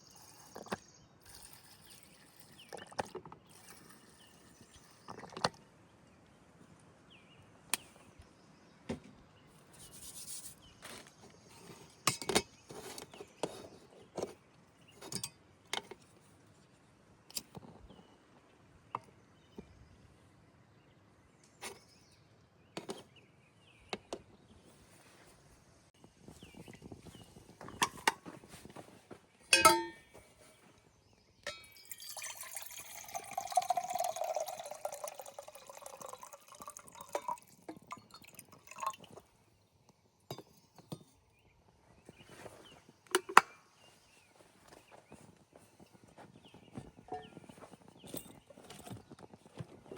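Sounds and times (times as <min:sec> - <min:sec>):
cookware and utensils clinking: 0:12.1 - 0:13.0, 0:15.0 - 0:16.0, 0:29.5 - 0:30.5, 0:31.5 - 0:39.1, 0:47.1 - 0:47.5
liquid pouring into container: 0:31.7 - 0:39.3.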